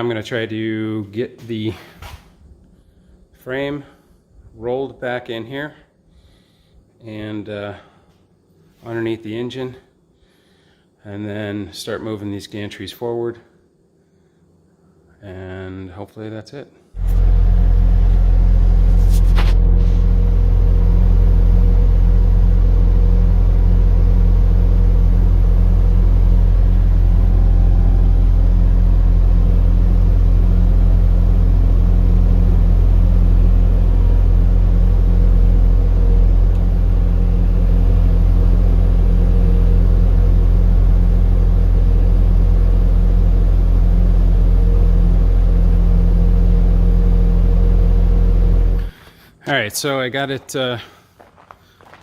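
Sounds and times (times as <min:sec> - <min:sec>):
vehicle engine rumbling: 0:16.9 - 0:52.0.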